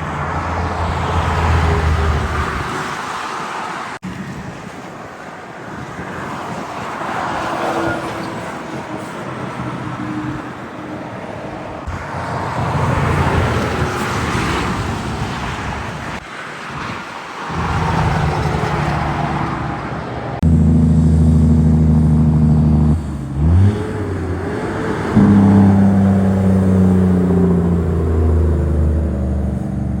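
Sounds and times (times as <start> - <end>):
truck diesel engine drone: 0.0 - 2.8, 11.1 - 15.8, 17.5 - 30.0
highway traffic with tyre noise: 0.0 - 30.0.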